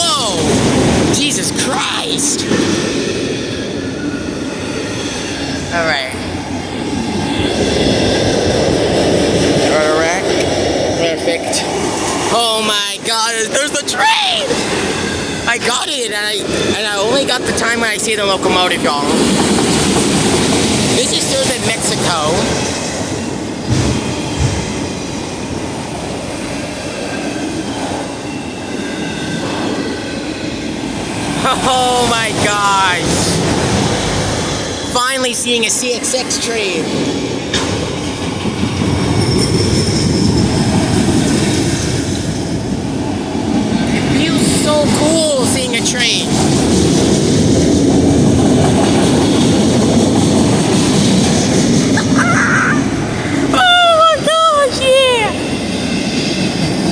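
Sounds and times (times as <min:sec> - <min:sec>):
freight train wheels on rails: 0:00.0 - 0:56.9
high wheel squeal: 0:38.9 - 0:42.0.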